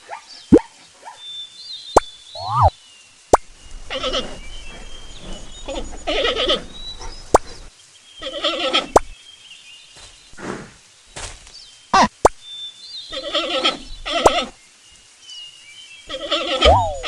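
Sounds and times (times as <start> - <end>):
animal wavering cries: 16.1 - 17.0.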